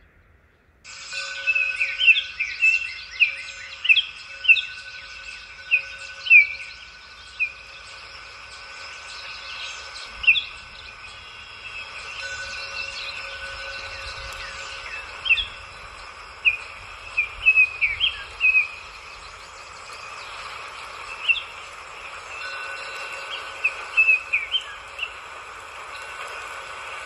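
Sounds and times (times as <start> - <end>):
songbird chirping: 0.0 - 27.0
faint steady tone: 0.8 - 27.0
outdoor hiss: 0.8 - 27.0.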